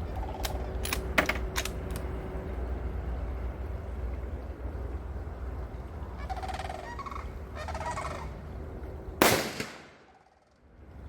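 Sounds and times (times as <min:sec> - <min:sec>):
turkey gobbling: 0:06.2 - 0:08.3
rifle shot: 0:09.2 - 0:10.0.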